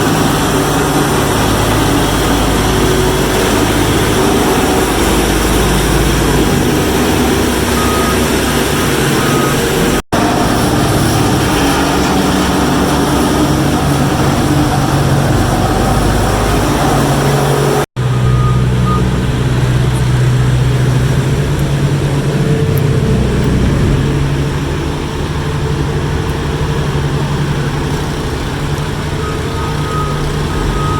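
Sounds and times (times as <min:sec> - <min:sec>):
diesel engines running: 0:00.0 - 0:30.9
backup alarm beeping: 0:02.2 - 0:10.0, 0:17.0 - 0:19.4, 0:29.2 - 0:30.9.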